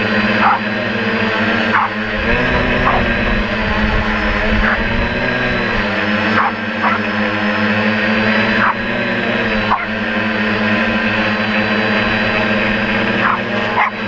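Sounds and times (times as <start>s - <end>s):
drone propellers whirring: 0.0s - 14.0s
small dog yipping: 6.4s - 7.1s.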